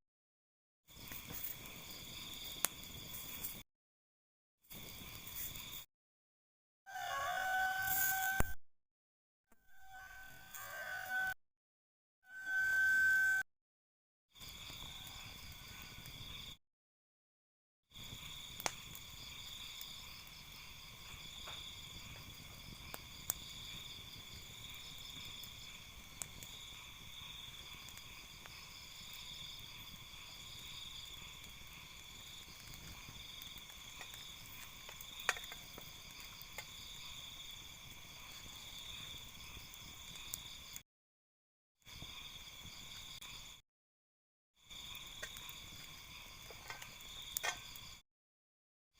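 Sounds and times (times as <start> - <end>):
crickets trilling: 0.9 - 3.6, 4.7 - 5.9, 6.9 - 8.4, 14.4 - 16.6, 17.9 - 40.8, 41.9 - 43.6, 44.6 - 48.0.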